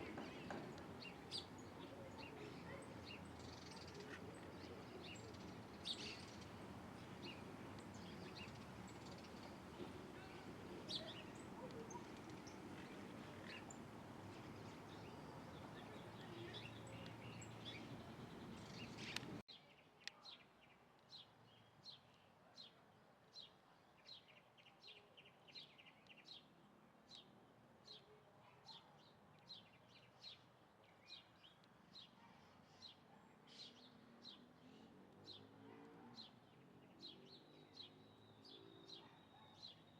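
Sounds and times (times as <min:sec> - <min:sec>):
bird chirping: 0:00.0 - 0:19.4
outdoor background noise: 0:00.0 - 0:39.9.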